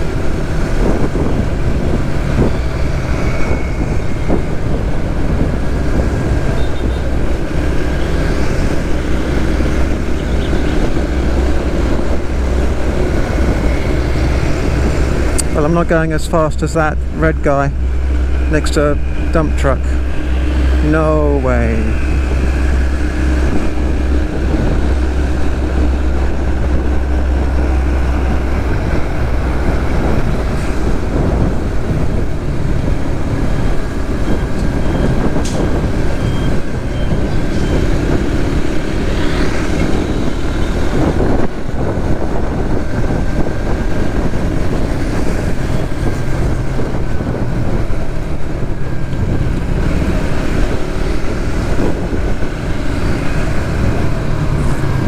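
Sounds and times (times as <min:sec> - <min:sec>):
road and traffic noise: 0:00.0 - 0:55.0.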